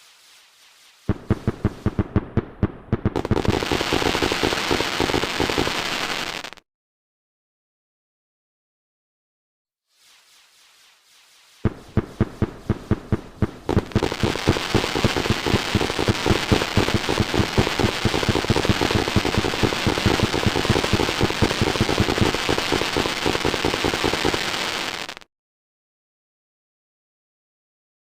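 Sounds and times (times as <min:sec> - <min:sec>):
firecrackers banging and crackling: 0:01.1 - 0:06.5, 0:11.6 - 0:25.2.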